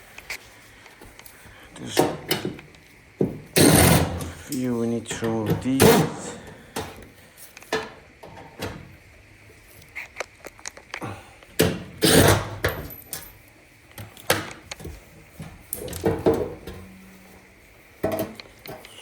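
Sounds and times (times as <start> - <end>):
metal panels and tools clattering: 3.5 - 7.0, 15.8 - 17.2.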